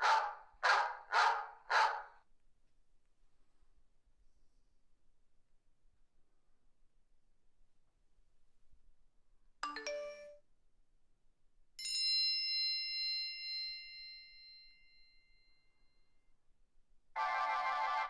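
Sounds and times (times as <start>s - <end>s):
two-note chime: 9.6s - 10.4s.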